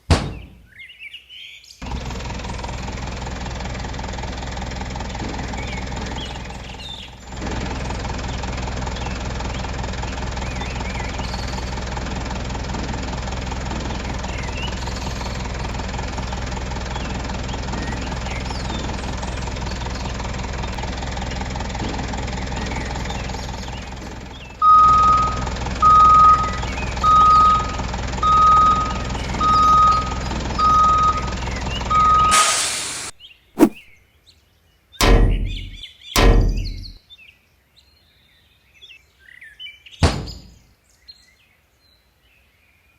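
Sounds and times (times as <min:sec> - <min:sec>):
vehicle engine running: 0:01.8 - 0:25.9.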